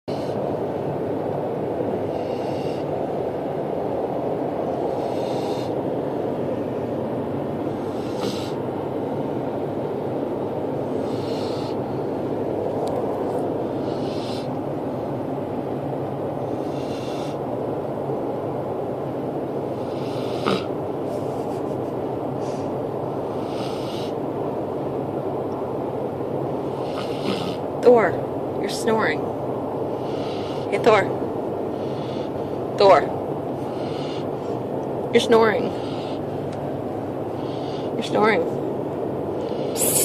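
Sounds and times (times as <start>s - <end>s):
steady rushing noise: 0.1s - 23.5s
dog snoring: 2.0s - 2.9s, 4.8s - 5.8s, 7.8s - 8.6s, 11.0s - 11.8s, 13.7s - 14.5s, 16.4s - 17.4s, 19.8s - 20.8s, 23.2s - 24.2s, 26.6s - 27.6s.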